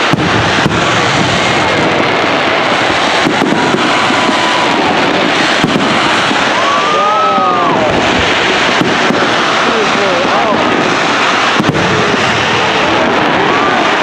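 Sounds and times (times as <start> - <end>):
fireworks bangs: 0.0 - 14.0
loud rumble of fireworks: 0.0 - 14.0.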